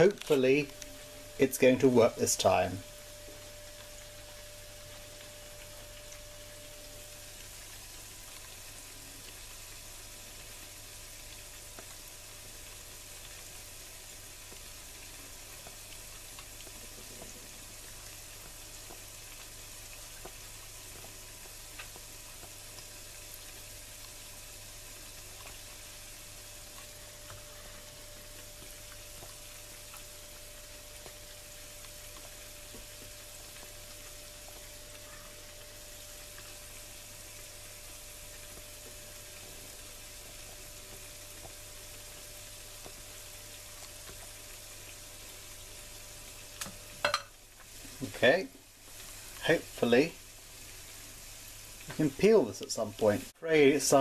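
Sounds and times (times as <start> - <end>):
faint crackles: 0.0 - 6.6
batter sizzling on a pan: 0.0 - 54.0.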